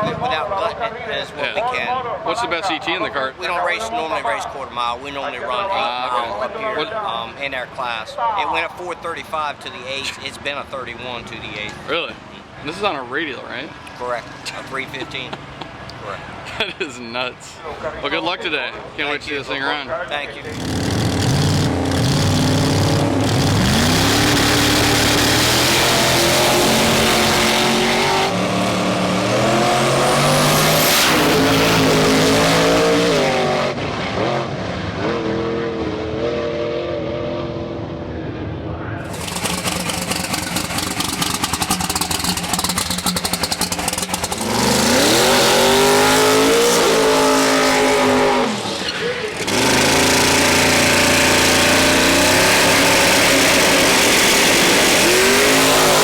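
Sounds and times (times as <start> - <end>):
exhaust crackle: 20.5 - 28.3, 39.0 - 45.2
car engine revving and accelerating: 20.5 - 38.1, 39.1 - 56.0.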